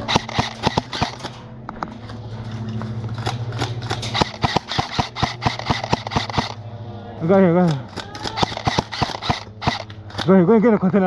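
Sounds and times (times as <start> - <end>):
airsoft guns firing: 0.0 - 1.4, 3.2 - 6.6, 7.6 - 10.4.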